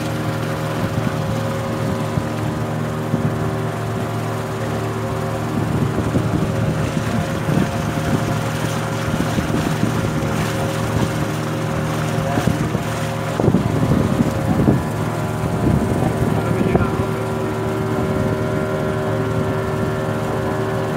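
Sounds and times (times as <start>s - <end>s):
boat engine running: 0.0s - 20.9s
wind noise on microphone: 0.7s - 4.2s, 5.3s - 11.4s, 12.2s - 20.2s.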